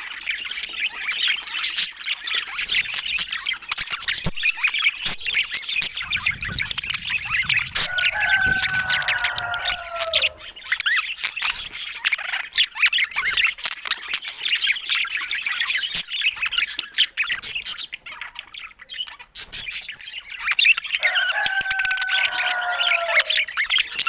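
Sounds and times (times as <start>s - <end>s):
budgerigars chattering: 0.0s - 24.0s
falling squawk-like call: 5.2s - 10.6s, 21.0s - 23.6s.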